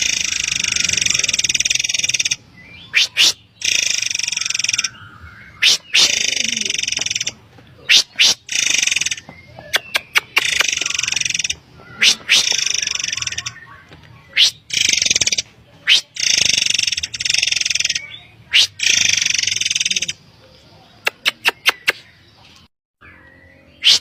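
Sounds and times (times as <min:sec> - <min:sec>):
bird harsh buzzy rasps: 0:00.0 - 0:05.0, 0:05.6 - 0:09.2, 0:10.1 - 0:13.5, 0:14.4 - 0:20.2.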